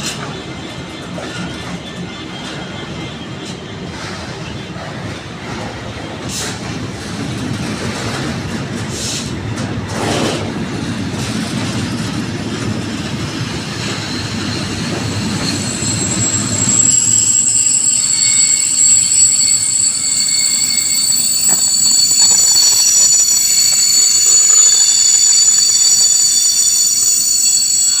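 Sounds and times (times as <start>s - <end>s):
freight train wagons rumbling: 0.0s - 28.0s
high-pitched wheel squeal: 13.4s - 28.0s.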